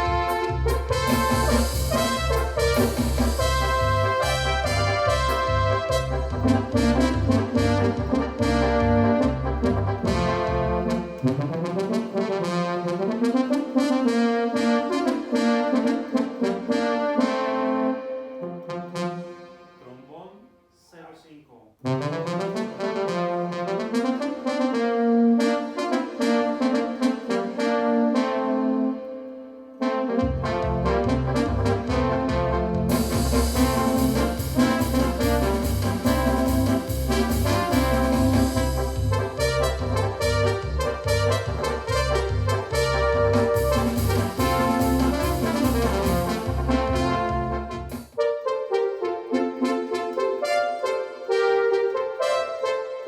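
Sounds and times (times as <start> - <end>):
synthesizer bass: 0.0 - 12.2, 30.2 - 48.2
synthesizer brass chords and melody: 0.0 - 20.8, 21.8 - 53.0.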